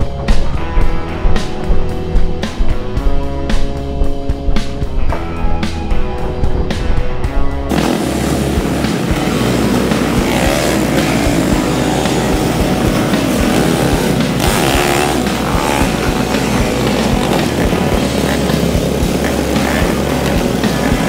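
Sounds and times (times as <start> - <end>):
loud rushing noise: 6.4 - 21.0
motorcycle engine revving: 6.5 - 21.0.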